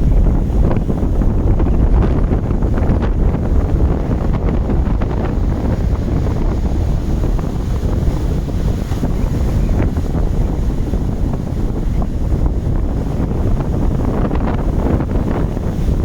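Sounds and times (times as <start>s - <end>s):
heavy low rumble: 0.0s - 16.0s
ocean waves roaring: 0.0s - 16.0s
wind buffeting microphone: 0.0s - 16.0s.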